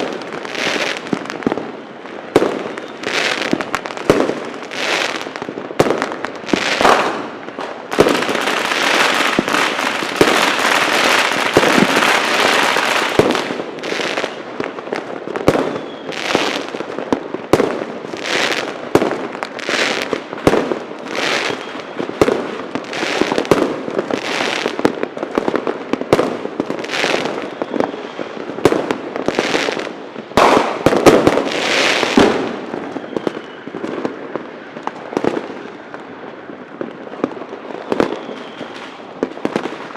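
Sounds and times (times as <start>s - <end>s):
fireworks loud bangs: 0.0s - 14.7s, 30.3s - 35.7s
firecrackers crackling: 0.0s - 39.9s.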